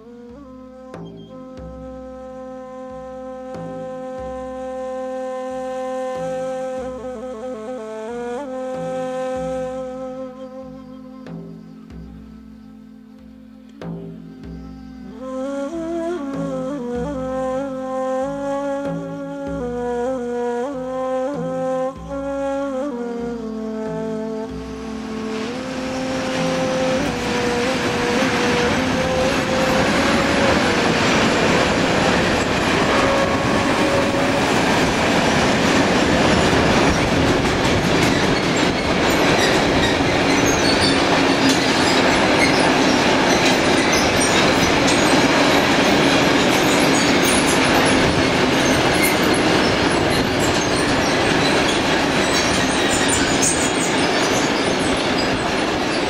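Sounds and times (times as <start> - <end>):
train rumbling on rails: 24.4 - 56.0
wheels whining on rails: 24.4 - 56.0.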